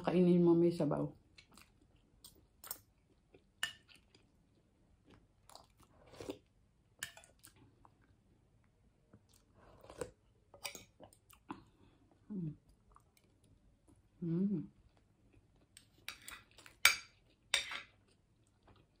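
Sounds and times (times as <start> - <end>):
person chewing food: 1.2 - 19.0
person humming: 14.2 - 14.7.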